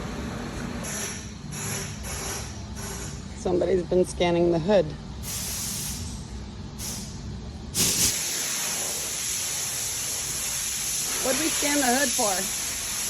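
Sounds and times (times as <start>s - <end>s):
hissing spray of air: 5.2s - 13.0s.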